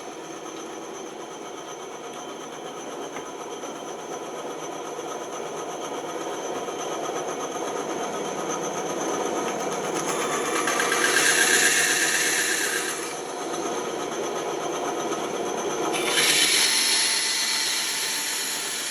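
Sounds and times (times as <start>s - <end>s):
bandsaw running: 9.9s - 13.6s, 15.9s - 18.9s
bandsaw blade cutting wood: 10.0s - 13.4s, 15.9s - 18.9s.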